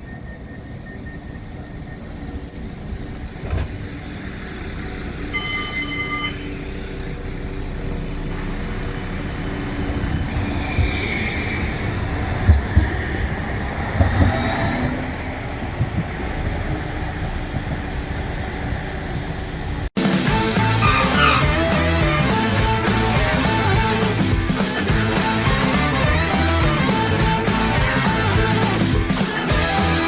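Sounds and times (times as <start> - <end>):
tram rumbling: 0.0 - 30.0
wheel squeal: 5.2 - 7.7, 8.6 - 19.9
brief high tone: 5.3 - 6.6
knocks: 12.4 - 16.9.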